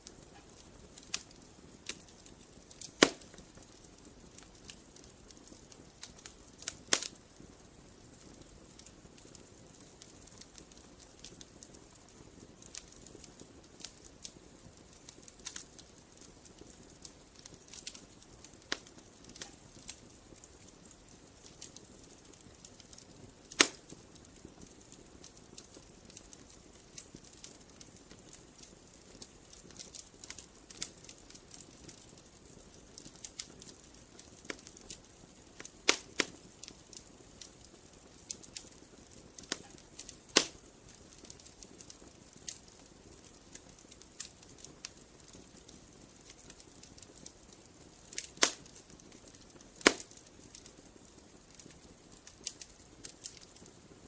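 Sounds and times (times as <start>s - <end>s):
campfire crackling: 0.0s - 54.0s
sharp wood snaps: 3.0s - 3.4s, 23.5s - 23.8s, 40.4s - 40.6s, 48.2s - 48.8s, 49.8s - 50.1s.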